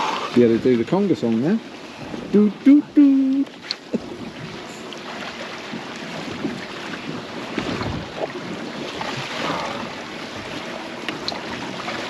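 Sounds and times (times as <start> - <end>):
water lapping against boat hull: 0.0 - 12.0
wind buffeting microphone: 3.9 - 12.0.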